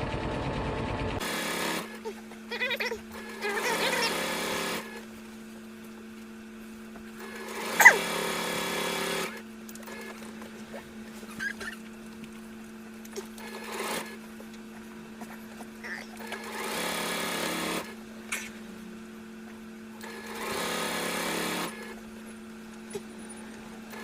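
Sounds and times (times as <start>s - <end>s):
sewing machine stitching: 3.1s - 5.0s, 7.2s - 10.2s, 13.4s - 14.2s, 16.2s - 18.0s, 20.0s - 22.0s
steady hum: 17.2s - 20.4s.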